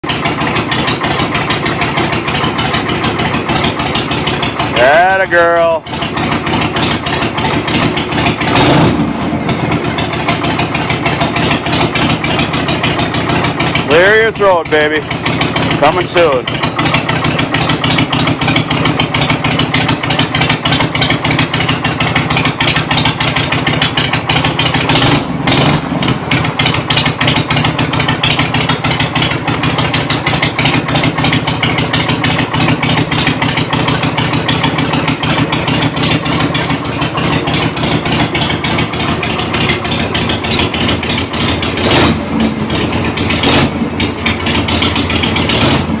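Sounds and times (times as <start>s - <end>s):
motorcycle engine running: 0.0s - 46.0s.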